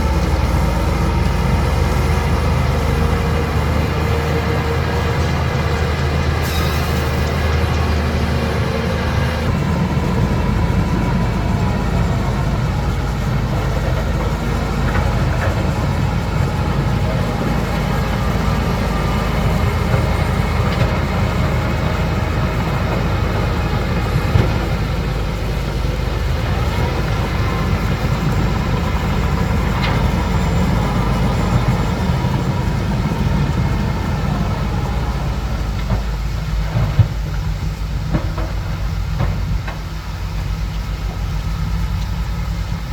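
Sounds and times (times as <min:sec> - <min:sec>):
faint metallic squeals: 0:00.0 - 0:21.2
bulldozer diesel engine droning: 0:00.0 - 0:42.9.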